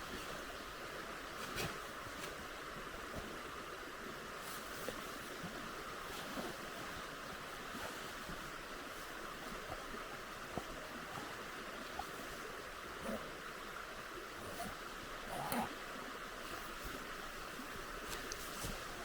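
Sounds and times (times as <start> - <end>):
faint small ticks: 18.0 - 18.9.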